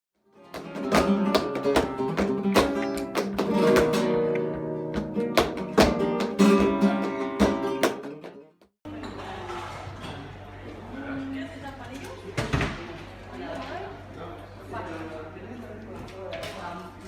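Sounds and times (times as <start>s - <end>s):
acoustic guitar plucking and strumming: 0.4s - 8.6s.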